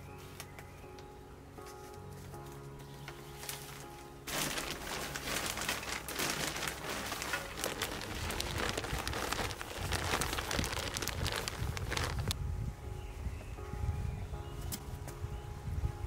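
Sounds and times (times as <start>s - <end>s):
rain pattering: 4.3s - 12.4s.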